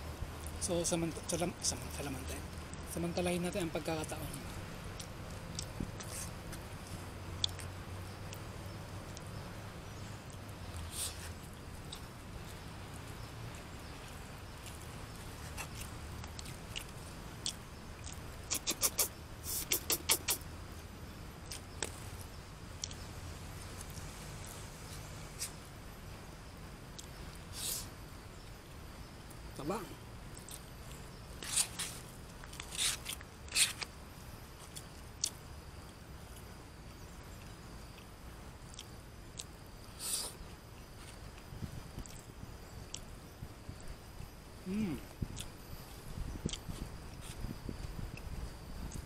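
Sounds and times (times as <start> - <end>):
man chewing food: 4.9 - 8.5, 10.2 - 20.5, 21.4 - 25.6, 26.9 - 27.4, 30.3 - 33.9, 34.6 - 36.5, 37.4 - 44.4, 45.1 - 49.0
mouth clicks: 15.6 - 20.5, 44.6 - 45.5.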